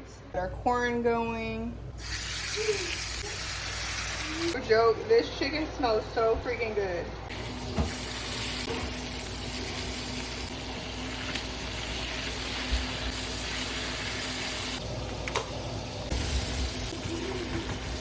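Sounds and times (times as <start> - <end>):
chicken sizzling in a pan: 2.0 - 4.6, 7.3 - 14.8, 15.8 - 18.0.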